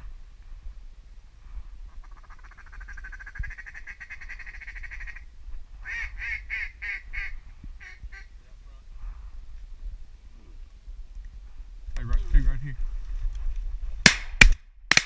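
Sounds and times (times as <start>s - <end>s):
low wind rumble: 0.0s - 14.9s
duck quacking: 2.1s - 5.2s.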